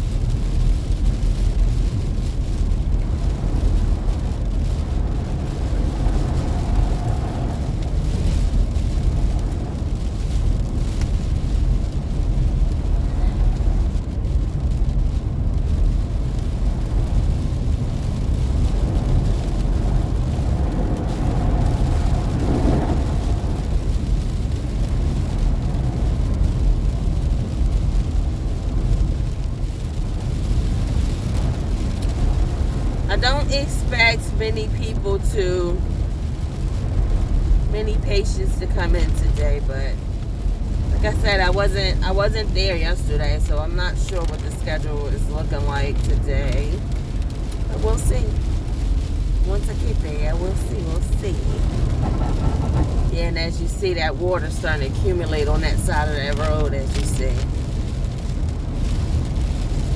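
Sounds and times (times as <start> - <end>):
car driving on wet road: 0.0 - 59.9
rain: 0.0 - 59.9
wet tyre noise: 0.0 - 59.9.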